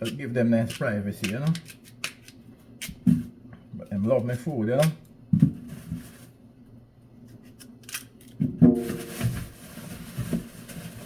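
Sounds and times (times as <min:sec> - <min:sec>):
knife clicking and scraping potato: 0:00.0 - 0:03.0.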